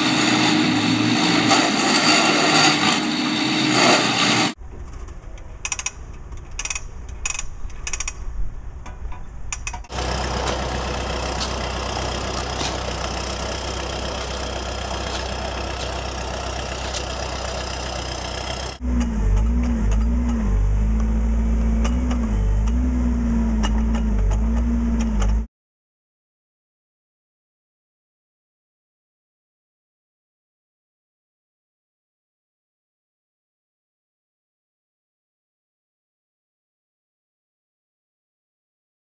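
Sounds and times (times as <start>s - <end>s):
backhoe engine running: 0.0s - 4.6s, 9.9s - 25.5s.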